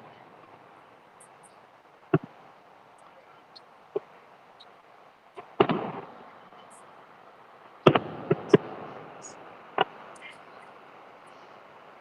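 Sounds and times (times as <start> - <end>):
fireworks crackling: 0.0 - 12.0
fireworks bangs: 2.1 - 2.5, 5.3 - 6.8, 7.6 - 10.5.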